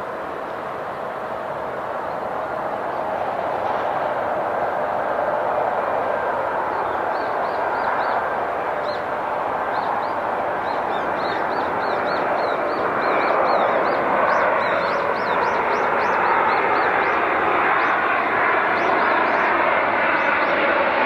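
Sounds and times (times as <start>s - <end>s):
jet engine rushing: 0.0s - 21.0s
small bird chirping: 9.7s - 17.2s.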